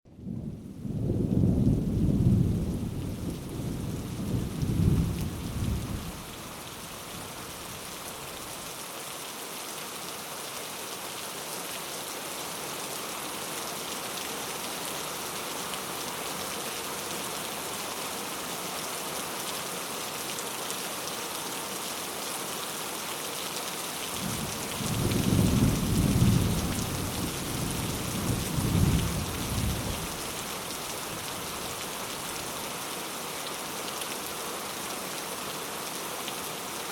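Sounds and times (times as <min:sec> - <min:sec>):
steady rain: 0:00.1 - 0:36.9
rolling thunder: 0:00.2 - 0:06.2, 0:24.2 - 0:30.2.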